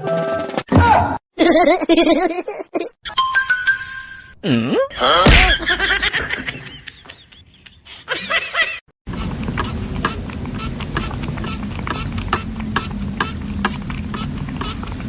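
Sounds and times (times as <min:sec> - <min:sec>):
people laughing: 0:05.0 - 0:08.8.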